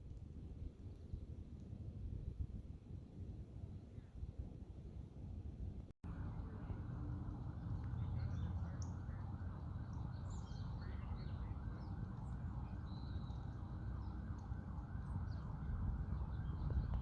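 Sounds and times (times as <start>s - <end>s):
faint bird chirps: 6.1s - 17.0s.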